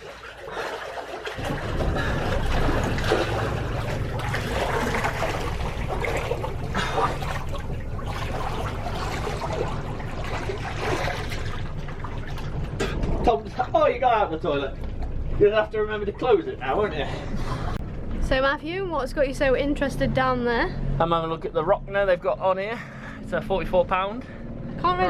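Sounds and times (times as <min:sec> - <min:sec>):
water rushing against boat hull: 0:00.0 - 0:18.3
low steady hum: 0:00.0 - 0:25.0.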